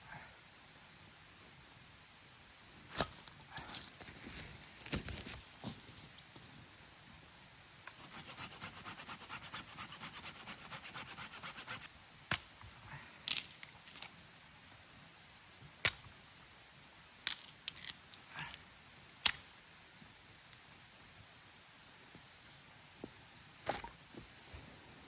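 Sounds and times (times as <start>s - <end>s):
hand saw cutting a branch: 7.9s - 11.9s.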